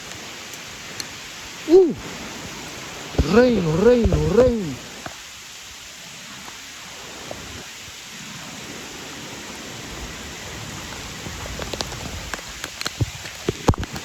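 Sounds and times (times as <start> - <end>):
raindrops tapping close by: 0.0 - 5.6, 10.3 - 14.0
rain falling steadily: 0.0 - 14.0.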